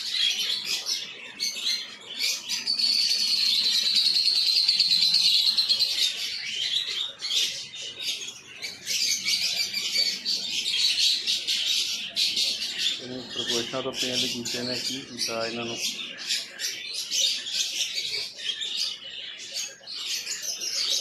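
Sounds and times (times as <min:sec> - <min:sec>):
caged birds chirping and twittering: 0:00.0 - 0:21.0
high bird trill: 0:00.0 - 0:21.0.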